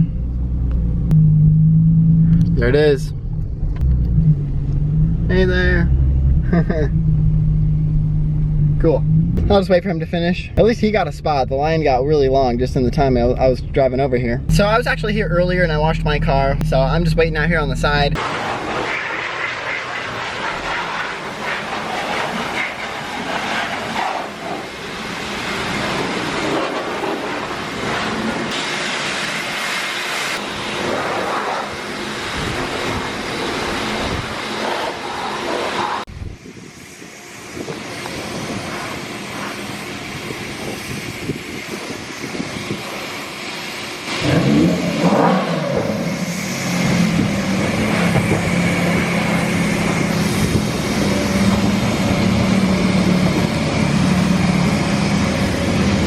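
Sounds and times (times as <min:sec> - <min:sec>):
car engine starting and idling: 0:00.0 - 0:18.8, 0:42.7 - 0:56.0
steady rushing noise: 0:14.2 - 0:56.0.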